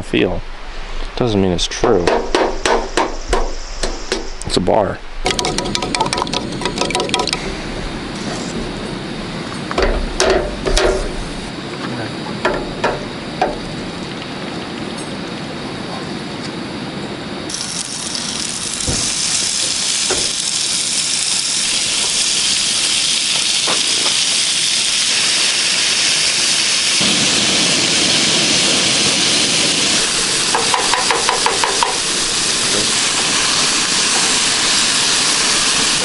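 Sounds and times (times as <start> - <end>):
steak sizzling in a pan: 17.5 - 36.0.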